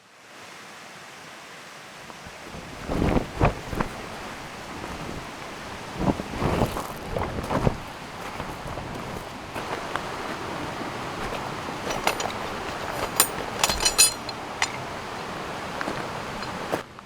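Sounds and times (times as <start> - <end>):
river flowing: 7.9 - 16.8
metallic clinks: 11.2 - 15.0, 15.9 - 16.7.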